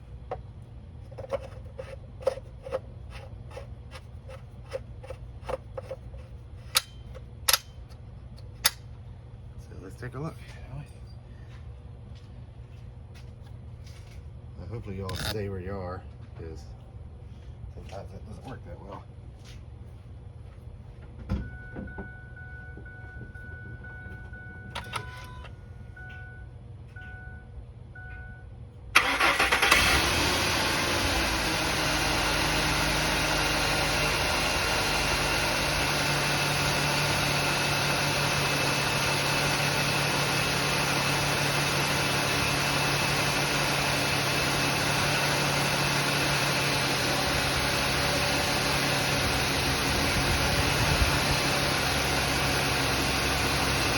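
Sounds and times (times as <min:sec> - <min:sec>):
truck engine starting and idling: 0:28.9 - 0:53.9.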